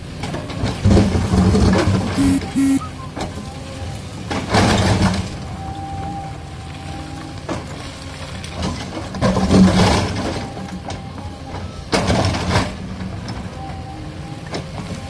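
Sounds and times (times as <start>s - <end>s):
bursts of noise: 2.2s - 3.1s.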